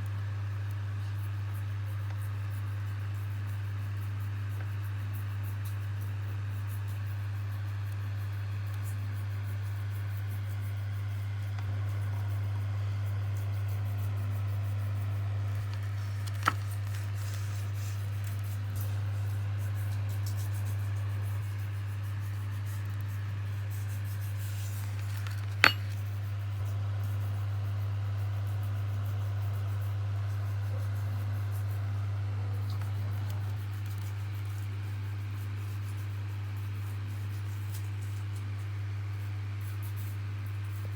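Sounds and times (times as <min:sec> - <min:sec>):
steady low hum: 0:00.0 - 0:40.9
sharp clinks: 0:25.6 - 0:26.0.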